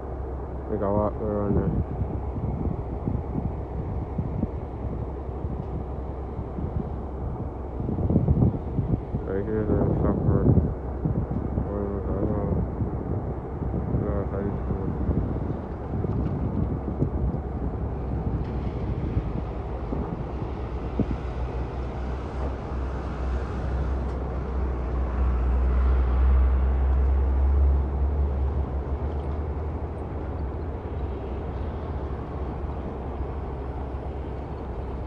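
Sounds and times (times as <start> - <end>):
heavy diesel machinery rumbling: 0.0 - 35.0.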